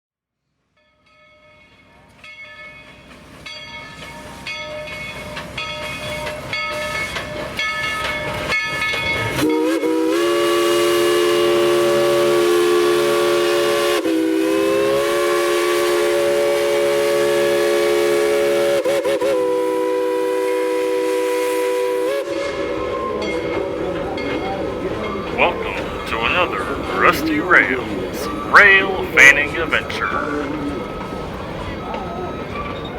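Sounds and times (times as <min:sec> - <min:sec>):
steam locomotive bell ringing: 0:00.8 - 0:09.9, 0:22.4 - 0:32.9.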